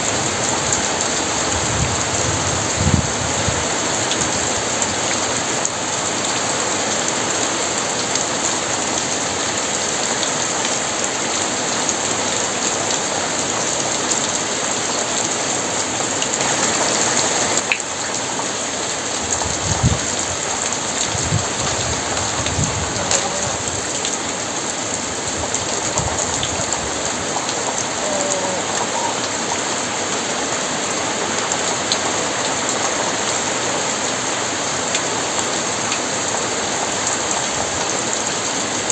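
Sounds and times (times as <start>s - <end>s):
heavy rain pouring: 0.0s - 38.9s
thunder rumbles: 19.3s - 24.0s.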